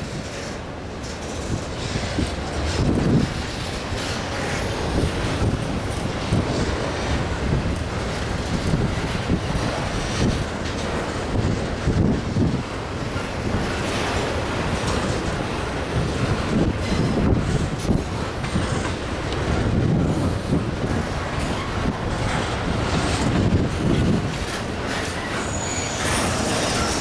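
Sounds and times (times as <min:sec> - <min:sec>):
train wheels clacking on rails: 0:00.0 - 0:27.0
wind noise on microphone: 0:00.0 - 0:27.0
wheel squeal: 0:24.9 - 0:27.0.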